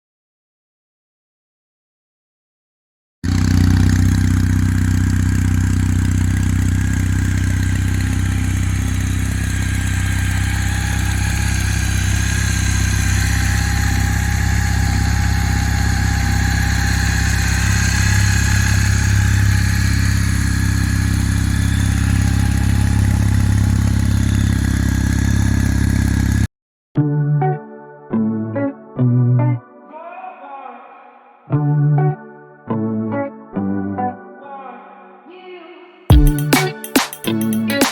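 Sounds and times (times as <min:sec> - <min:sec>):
motorcycle engine idling: 0:03.3 - 0:26.5, 0:36.1 - 0:37.9.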